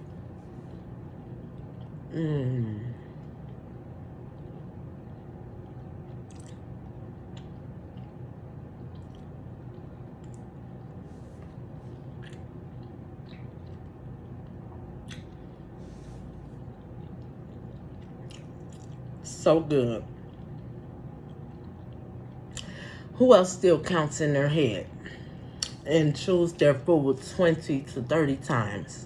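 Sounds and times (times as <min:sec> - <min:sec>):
steady low hum: 0:00.0 - 0:29.0
person chewing food: 0:00.1 - 0:19.2, 0:20.1 - 0:22.8, 0:25.4 - 0:25.8
wet mouth clicks: 0:06.2 - 0:06.6, 0:25.6 - 0:25.8.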